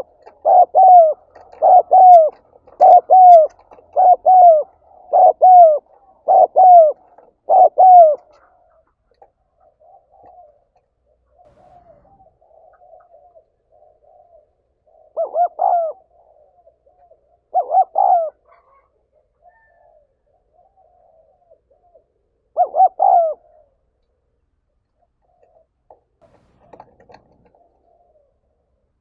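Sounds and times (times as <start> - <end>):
dove cooing: 0.0 - 24.0, 25.0 - 29.0.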